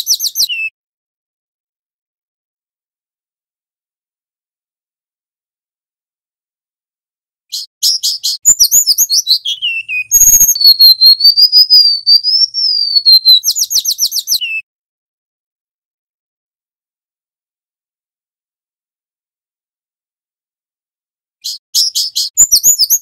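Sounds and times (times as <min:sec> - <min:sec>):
bird singing chirps and trill: 0:00.0 - 0:00.7, 0:07.5 - 0:14.6, 0:21.4 - 0:23.0.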